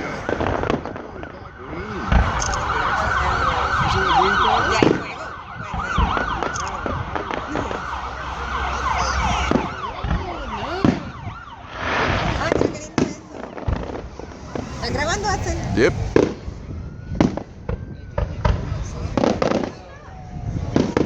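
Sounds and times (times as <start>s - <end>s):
whistling fireworks: 0.0s - 21.0s
low thumps: 1.9s - 19.7s
firework pops: 9.5s - 14.8s.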